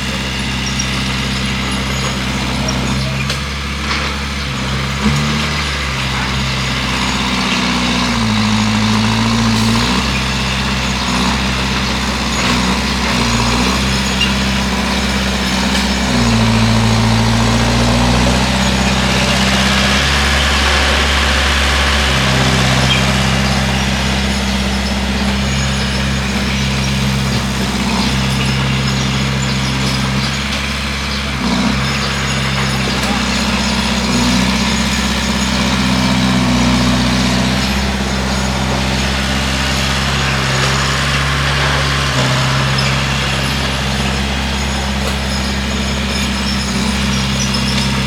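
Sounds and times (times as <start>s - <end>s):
bulldozer diesel engine: 0.0s - 48.0s.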